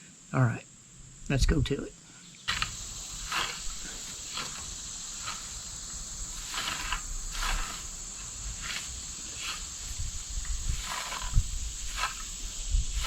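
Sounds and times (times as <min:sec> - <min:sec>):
insects chorus: 0:00.0 - 0:13.0.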